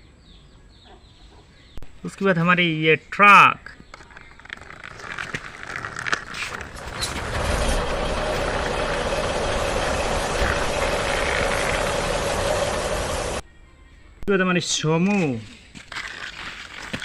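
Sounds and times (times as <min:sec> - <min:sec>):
toy truck clicking and rattling: 0:03.7 - 0:09.3
engine-like running noise: 0:06.6 - 0:13.4.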